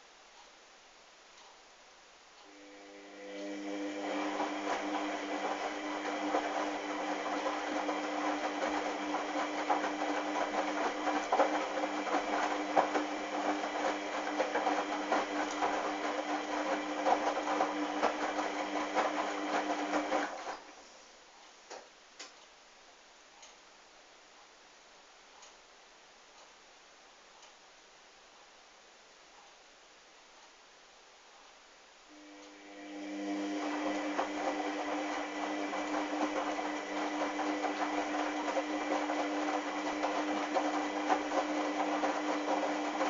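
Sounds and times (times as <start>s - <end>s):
washing machine motor hum: 2.4s - 20.8s, 32.1s - 43.0s.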